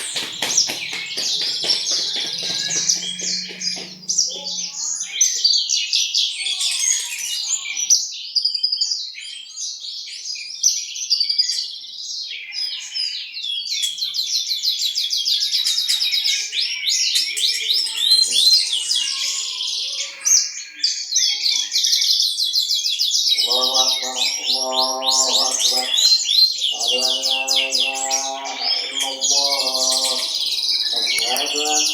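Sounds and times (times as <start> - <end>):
bush lark singing: 0.0 - 4.8, 23.4 - 31.9.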